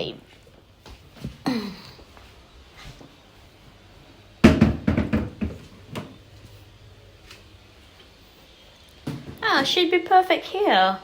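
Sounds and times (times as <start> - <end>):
plastic washing machine knocks: 4.4 - 6.1.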